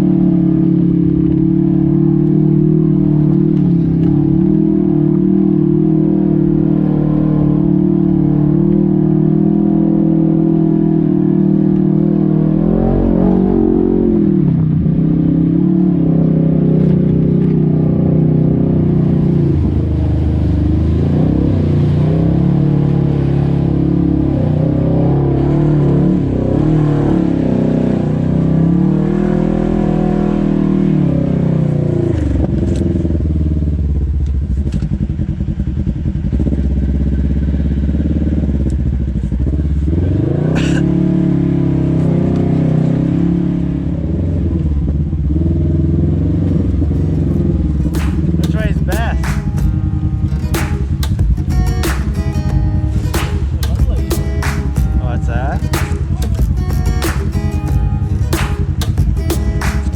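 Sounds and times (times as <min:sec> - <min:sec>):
utv engine revving: 0:00.0 - 0:59.9
sharp clacks: 0:47.0 - 0:59.9.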